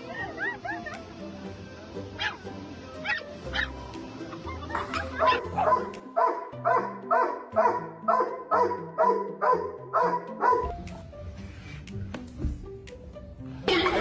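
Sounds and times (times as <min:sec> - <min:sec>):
background music: 0:00.0 - 0:14.0
dog barking: 0:02.2 - 0:02.4, 0:03.0 - 0:03.7, 0:04.9 - 0:10.7.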